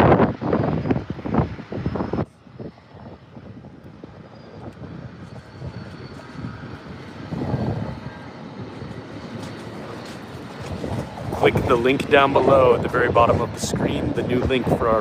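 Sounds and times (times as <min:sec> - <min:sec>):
faint high whine: 0:00.0 - 0:14.4
airplane engines droning: 0:00.0 - 0:15.0
wind gust on microphone: 0:00.0 - 0:15.0.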